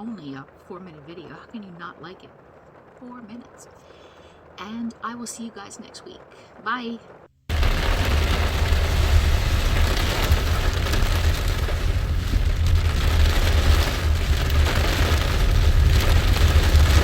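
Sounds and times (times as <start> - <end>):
deep rumble: 5.8 - 17.0
heavy rain pouring: 7.5 - 17.0.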